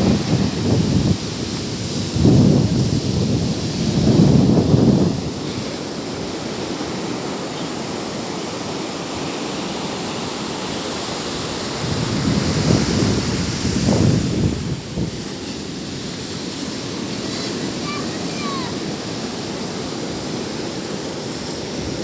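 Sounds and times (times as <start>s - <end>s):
wind buffeting microphone: 0.0s - 7.2s, 11.2s - 19.2s
sea waves on shore: 0.0s - 22.0s.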